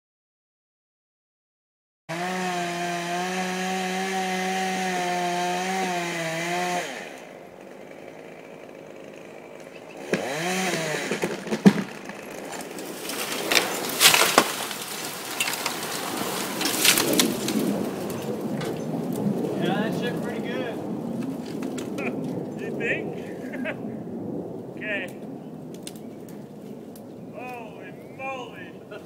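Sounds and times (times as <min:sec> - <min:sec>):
chainsaw running: 0:02.1 - 0:17.7
sharp cracks and knocks: 0:09.0 - 0:19.4, 0:21.1 - 0:22.7, 0:25.7 - 0:27.6.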